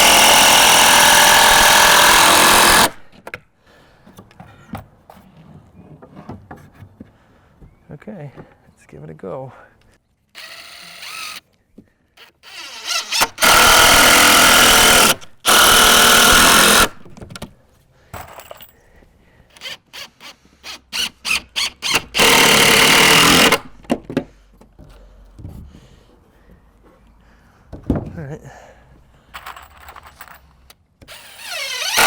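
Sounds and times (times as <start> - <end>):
cordless drill running: 0.0 - 3.1, 10.4 - 11.4, 12.2 - 17.0, 19.5 - 23.8, 31.1 - 32.0.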